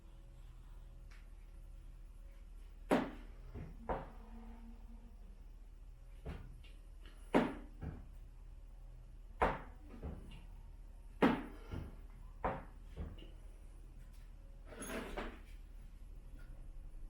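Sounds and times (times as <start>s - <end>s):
faint steady hum: 0.0s - 17.0s
sharp knocks and clunks: 9.4s - 10.3s, 11.2s - 13.3s.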